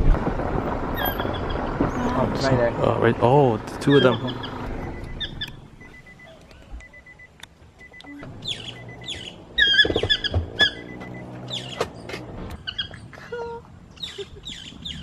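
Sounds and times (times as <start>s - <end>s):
bird squeaky downward calls: 3.9s - 7.2s, 7.8s - 13.1s, 13.9s - 15.0s.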